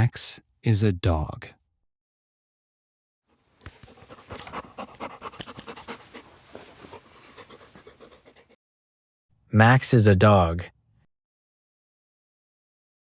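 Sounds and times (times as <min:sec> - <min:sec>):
dog panting: 0:03.6 - 0:08.6.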